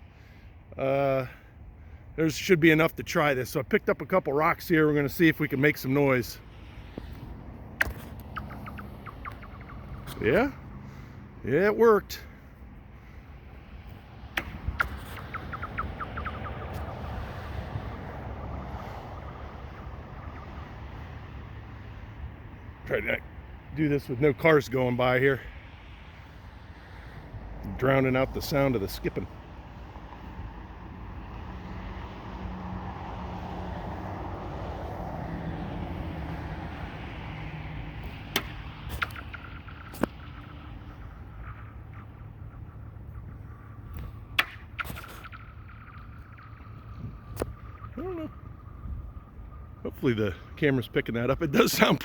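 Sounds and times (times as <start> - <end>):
vehicle passing on road: 0.0 - 52.0.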